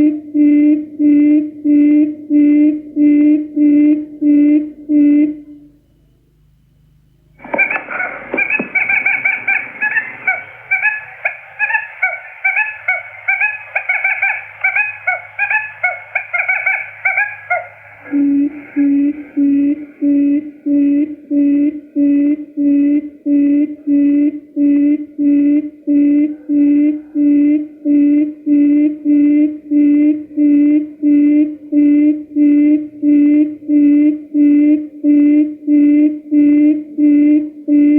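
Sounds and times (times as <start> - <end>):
quail lure calls: 7.4 - 20.0.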